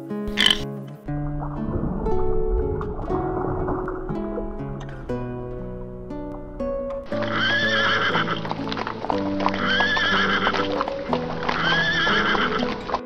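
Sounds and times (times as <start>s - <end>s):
hooves clip-clopping: 7.1s - 13.0s
horse whinnying: 7.1s - 13.0s.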